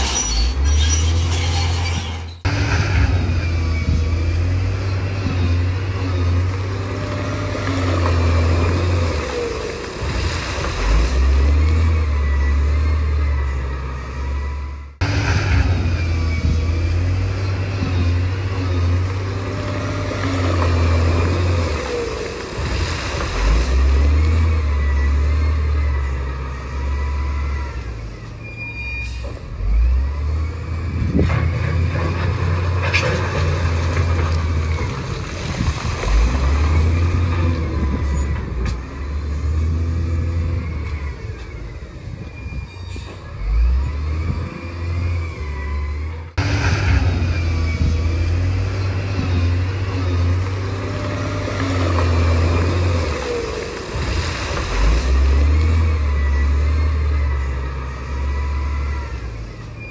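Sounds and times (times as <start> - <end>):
machine squeals and clanks: 0.0 - 5.7, 11.7 - 18.8, 24.3 - 35.2, 36.3 - 39.2, 40.3 - 50.3, 54.7 - 59.9
bulldozer engine revving: 0.0 - 59.9.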